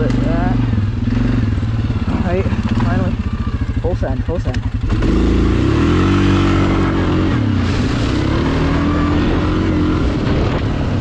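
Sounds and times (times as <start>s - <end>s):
atv engine at high revs: 0.0s - 11.0s
wind noise: 6.1s - 11.0s.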